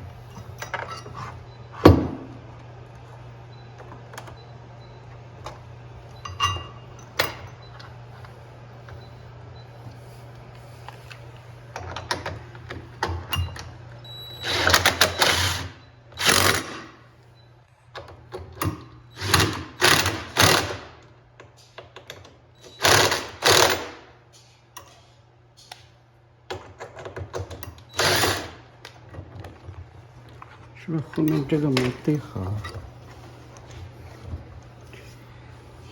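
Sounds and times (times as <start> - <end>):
power drill driving screws: 14.4 - 16.9, 19.2 - 20.9, 22.7 - 24.0, 27.9 - 28.6.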